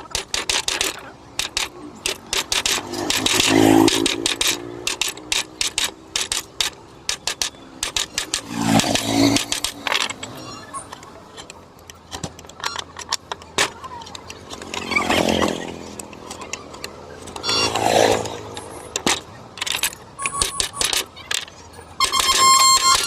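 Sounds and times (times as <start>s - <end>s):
carving tools tapping wood: 0.0s - 10.1s.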